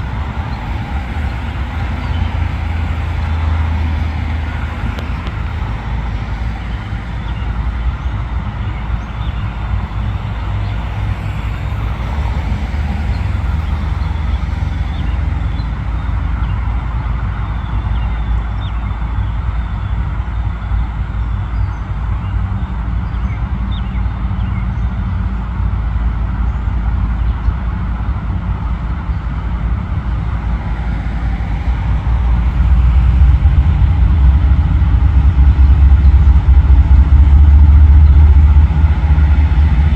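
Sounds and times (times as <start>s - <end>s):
diesel locomotive rumbling: 0.0s - 39.9s.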